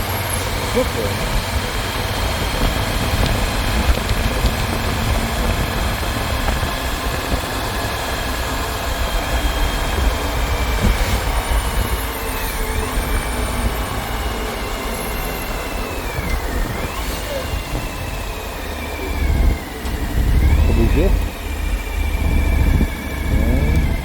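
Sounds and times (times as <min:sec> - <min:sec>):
motorcycle engine: 0:00.0 - 0:24.0
wind rumble on microphone: 0:00.0 - 0:24.0.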